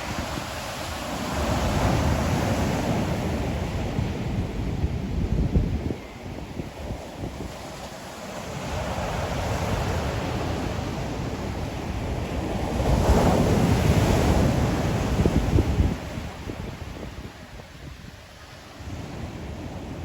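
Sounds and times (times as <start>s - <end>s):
ocean waves breaking: 0.0s - 5.2s
wind rumbling on microphone: 0.0s - 20.0s.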